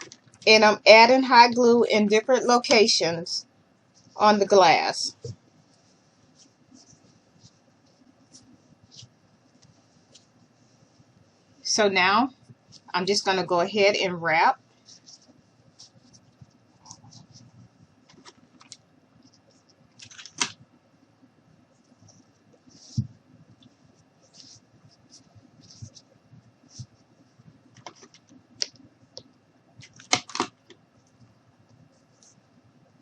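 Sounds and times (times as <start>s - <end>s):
rope rustling and scraping: 5.2s - 11.6s, 21.8s - 28.4s.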